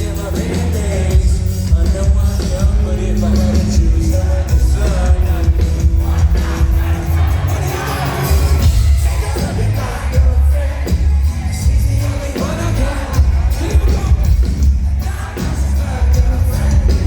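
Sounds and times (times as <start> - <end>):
heavy pulsing bass: 0.0 - 17.0
live band music: 0.0 - 17.0
sung vocals: 0.0 - 17.0.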